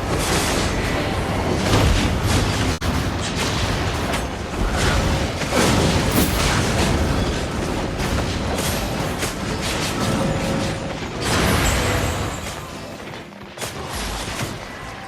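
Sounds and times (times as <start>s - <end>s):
heavy impacts and booms: 0.0s - 12.4s.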